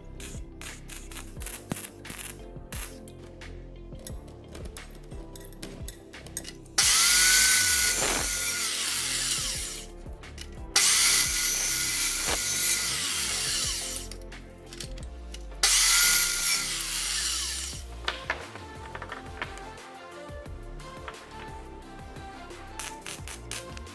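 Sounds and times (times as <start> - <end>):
small power tool whining: 6.8 - 9.8, 15.6 - 17.8.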